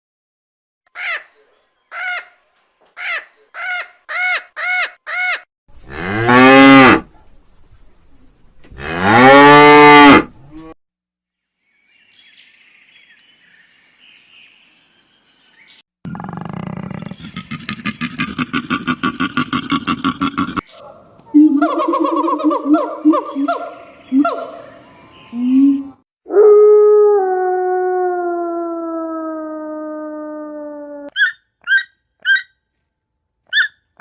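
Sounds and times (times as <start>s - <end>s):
cow mooing: 8.8s - 10.8s.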